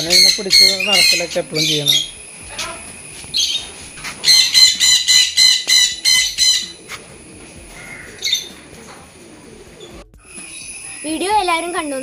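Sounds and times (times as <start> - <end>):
bird squawking harshly: 4.2 - 6.9.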